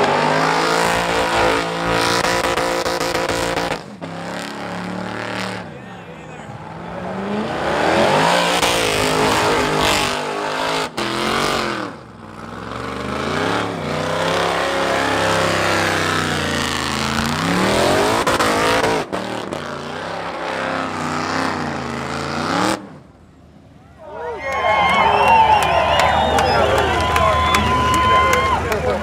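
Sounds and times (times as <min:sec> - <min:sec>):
tyres spinning: 0:00.0 - 0:03.8
race car engine revving hard: 0:00.0 - 0:05.7, 0:06.5 - 0:23.1.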